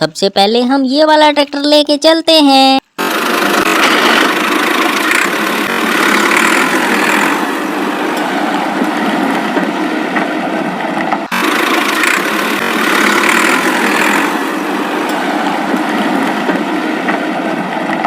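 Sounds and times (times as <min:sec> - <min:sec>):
toy tractor engine running: 0:03.0 - 0:09.9, 0:11.0 - 0:18.0.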